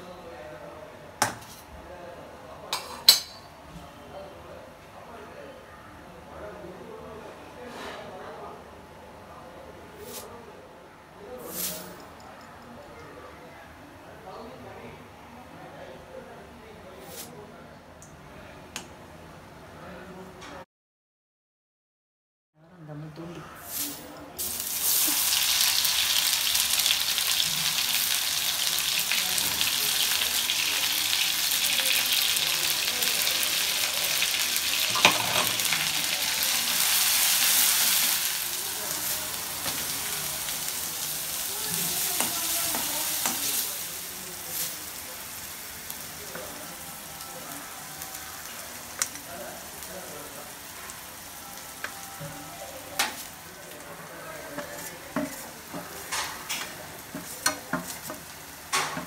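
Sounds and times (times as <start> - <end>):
paste sizzling in hot oil: 23.7 - 52.2.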